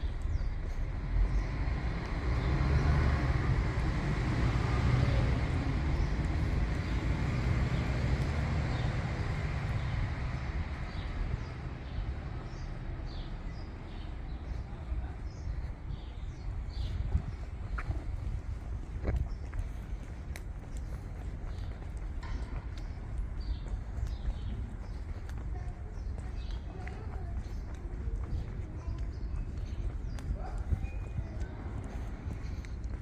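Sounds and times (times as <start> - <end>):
traffic background hum: 0.0 - 33.0
vehicle rumbling past: 0.9 - 14.2.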